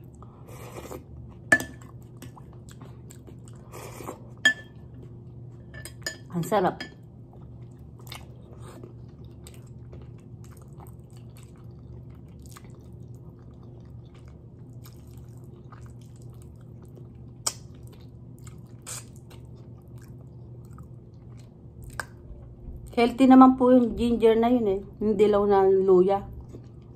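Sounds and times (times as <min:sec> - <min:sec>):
person chewing: 0:00.0 - 0:05.6, 0:07.3 - 0:22.3
low hum: 0:19.4 - 0:26.9.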